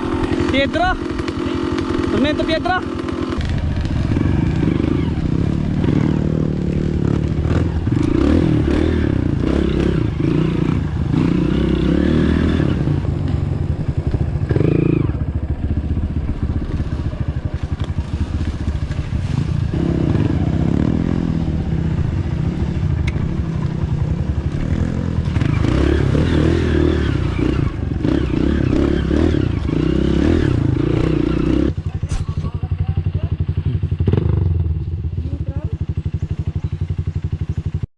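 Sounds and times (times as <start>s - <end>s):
dirt bike engine revving: 0.0s - 37.9s.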